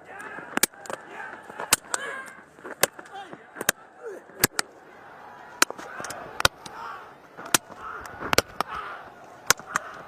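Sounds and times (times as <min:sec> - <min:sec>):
crowd noise: 0:00.0 - 0:10.0.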